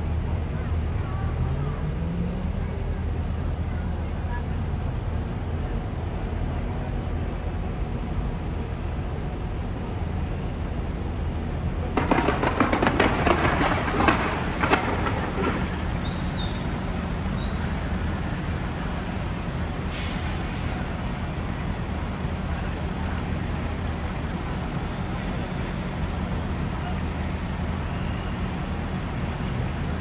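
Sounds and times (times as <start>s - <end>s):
fireworks crackling pops: 11.8s - 18.6s
short high hiss: 19.9s - 20.8s.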